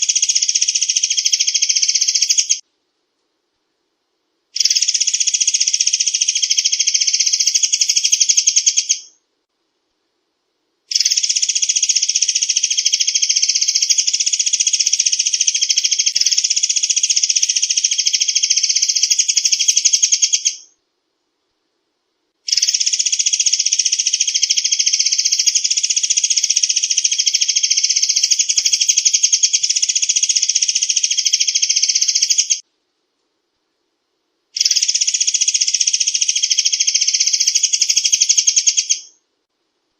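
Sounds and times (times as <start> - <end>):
bird song rattling trill: 0.0 - 2.6, 4.6 - 9.2, 10.9 - 20.8, 22.5 - 32.6, 34.6 - 39.2.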